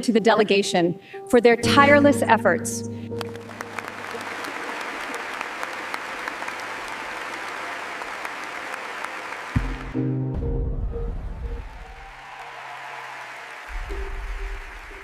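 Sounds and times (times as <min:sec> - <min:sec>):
music: 0:00.0 - 0:08.3, 0:09.2 - 0:12.4, 0:13.7 - 0:15.0
audience applauding: 0:03.2 - 0:10.2, 0:11.6 - 0:15.0.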